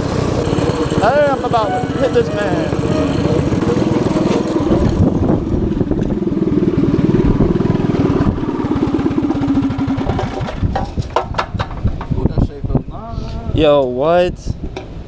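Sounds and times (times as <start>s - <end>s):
mini bike engine under throttle: 0.0s - 1.7s, 2.7s - 11.2s.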